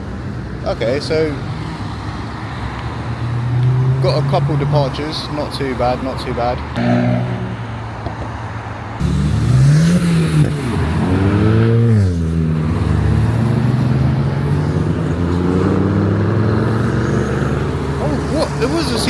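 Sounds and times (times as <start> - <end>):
car engine accelerating: 3.4 - 5.2, 9.0 - 19.0.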